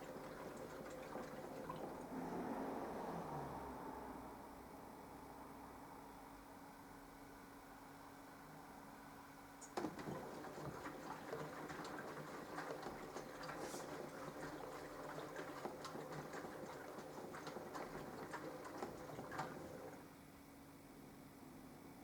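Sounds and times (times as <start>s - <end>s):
water and fabric pattering: 0.0s - 2.1s, 9.6s - 20.1s
washing machine motor hum: 0.0s - 3.1s, 9.6s - 20.3s.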